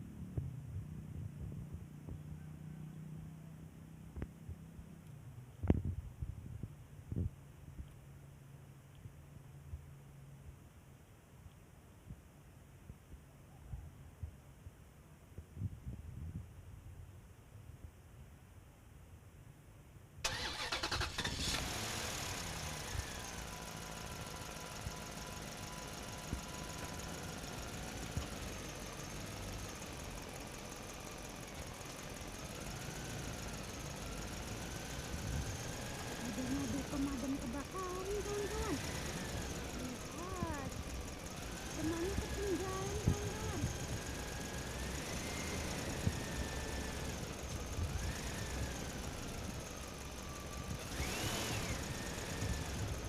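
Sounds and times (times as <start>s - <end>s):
motor running with low rumble: 21.3s - 53.0s
motor running with whine: 49.6s - 53.0s.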